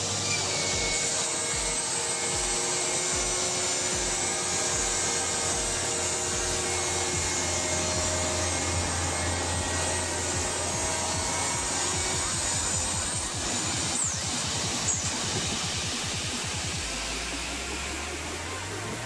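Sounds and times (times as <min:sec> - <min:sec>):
background music with steady beat: 0:00.0 - 0:19.0
trimming saw motors whining: 0:00.0 - 0:19.0.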